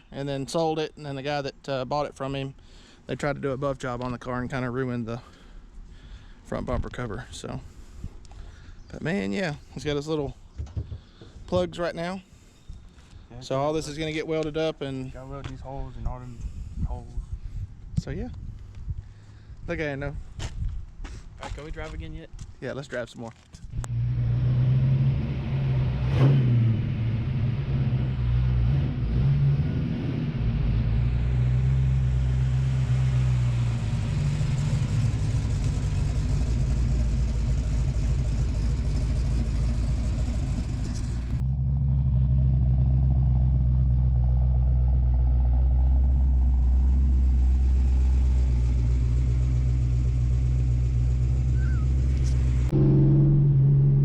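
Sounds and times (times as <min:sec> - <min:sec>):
car engine idling low drone: 0:23.7 - 0:54.0.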